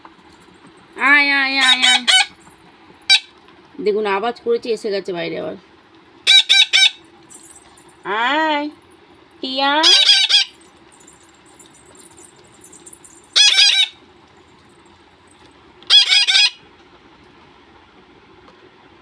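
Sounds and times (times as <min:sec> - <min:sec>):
parakeet screeching: 0:01.6 - 0:02.4, 0:06.3 - 0:07.0, 0:09.8 - 0:10.6, 0:13.4 - 0:14.0, 0:15.9 - 0:16.6.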